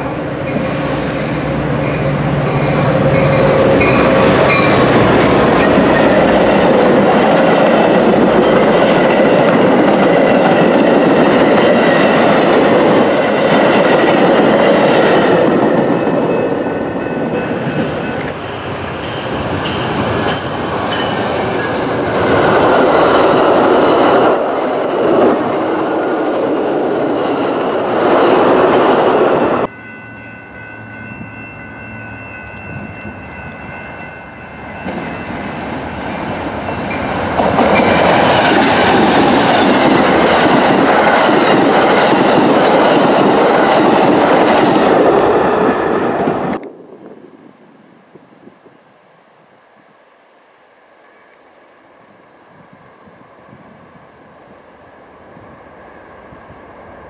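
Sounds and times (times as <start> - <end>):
diesel locomotive passing: 0.0 - 47.7, 50.4 - 57.0.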